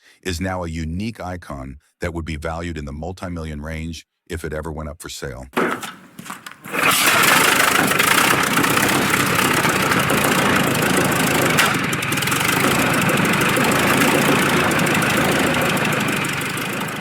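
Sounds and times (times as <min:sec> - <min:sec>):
large engine running: 0:05.6 - 0:17.0
sharp crack: 0:05.6 - 0:17.0.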